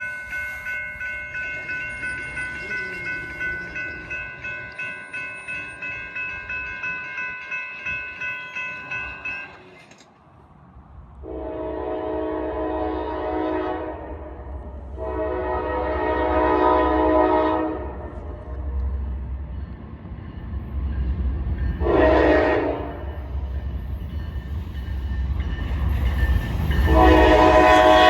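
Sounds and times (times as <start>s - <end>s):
bell dinging: 0.0s - 10.0s
locomotive air horn: 11.2s - 18.5s, 21.8s - 23.1s, 26.8s - 28.0s.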